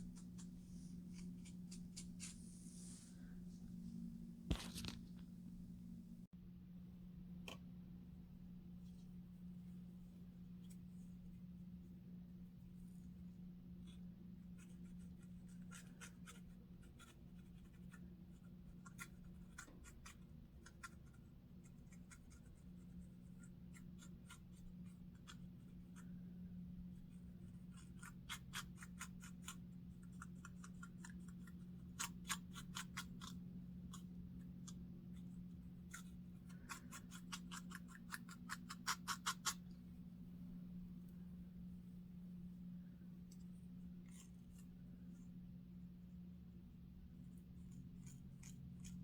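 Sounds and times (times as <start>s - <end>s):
faint low hum: 0.0s - 49.0s.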